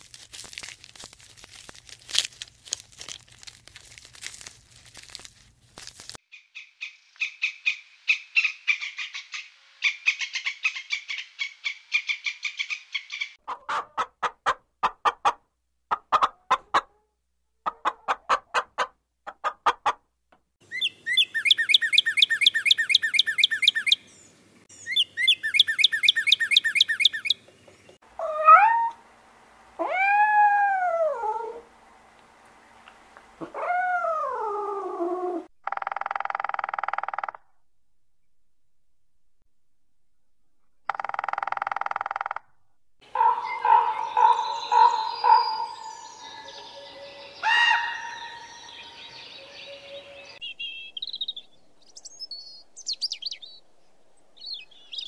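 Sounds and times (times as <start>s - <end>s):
bird singing whistled notes: 20.7s - 27.4s, 43.4s - 47.6s, 48.4s - 53.6s, 54.4s - 55.0s.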